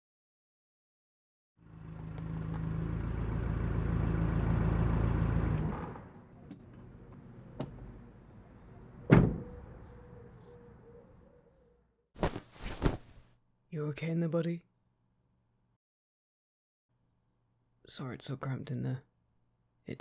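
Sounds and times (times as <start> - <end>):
car door slamming: 9.1 - 9.5.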